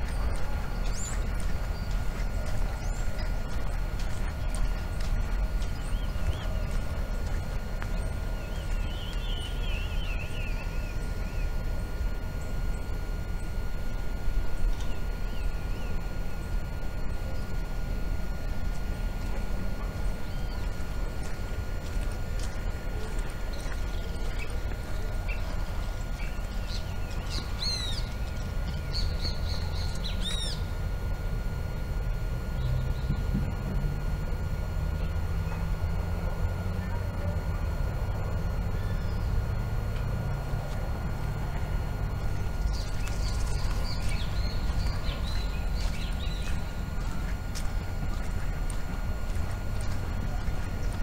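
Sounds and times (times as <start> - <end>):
small birds chirping: 0.0 - 31.0, 38.1 - 51.0
steady low rumble: 0.0 - 51.0
bird warbling call: 23.5 - 30.7.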